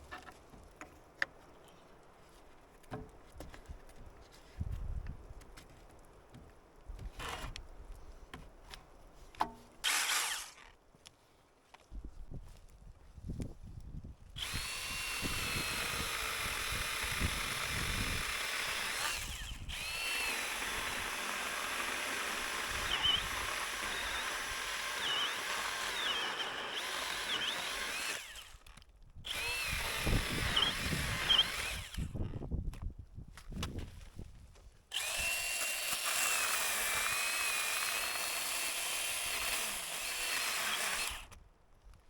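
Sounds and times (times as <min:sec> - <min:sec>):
power tool motor whine: 0:09.8 - 0:10.7, 0:14.4 - 0:28.7, 0:29.3 - 0:32.4, 0:34.9 - 0:41.3.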